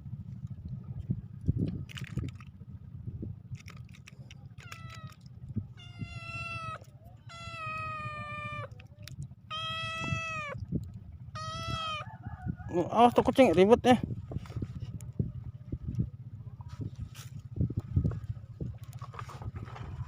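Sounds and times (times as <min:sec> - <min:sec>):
low rumble: 0:00.0 - 0:20.0
cat meowing: 0:04.6 - 0:08.8, 0:09.5 - 0:10.7, 0:11.4 - 0:12.2.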